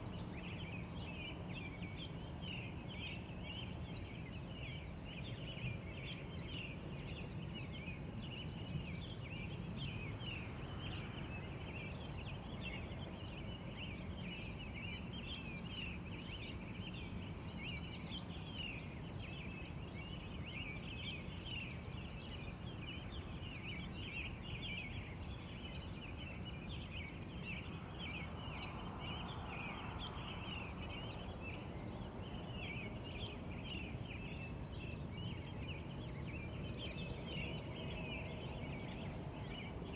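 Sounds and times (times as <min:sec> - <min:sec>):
high insect trill: 0:09.2 - 0:39.9.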